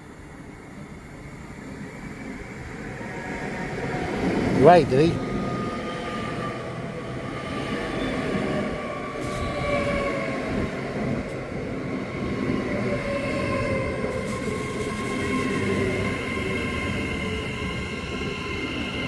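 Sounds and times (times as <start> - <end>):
electric train rumbling and whining: 5.2 - 19.0.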